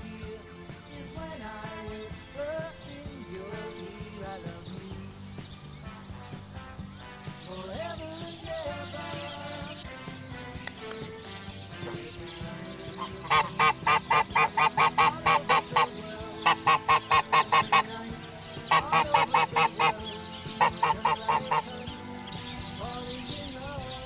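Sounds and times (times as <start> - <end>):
bird honking: 8.6 - 24.0.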